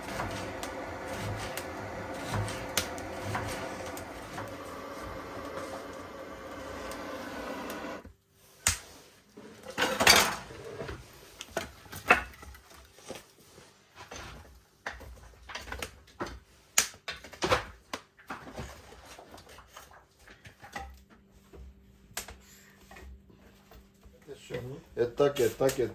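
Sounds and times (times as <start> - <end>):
steady hum: 0.0 - 8.0
wood fire crackling: 0.0 - 8.9.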